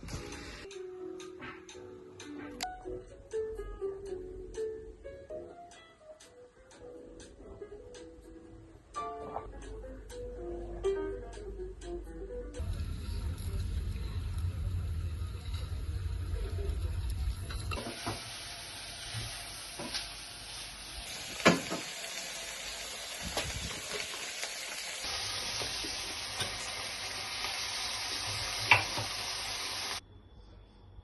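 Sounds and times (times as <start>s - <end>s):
food sizzling in a pan: 0.0s - 0.7s, 12.6s - 30.0s.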